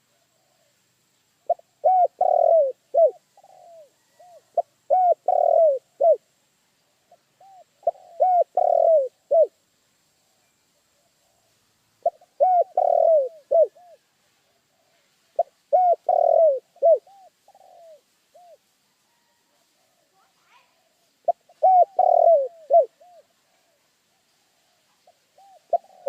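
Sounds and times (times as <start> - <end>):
dove cooing: 1.4 - 6.3, 7.1 - 9.6, 11.0 - 18.6, 19.2 - 23.8, 25.0 - 26.0.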